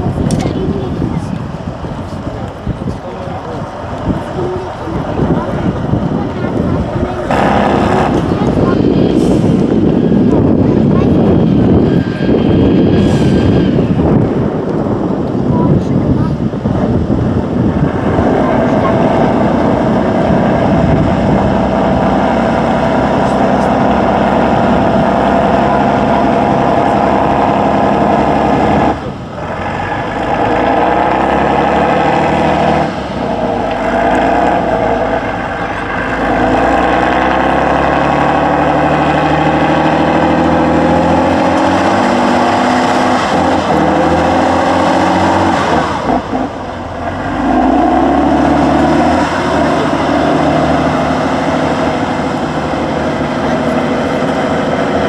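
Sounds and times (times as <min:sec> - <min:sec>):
truck diesel engine revving: 0:00.0 - 0:55.0.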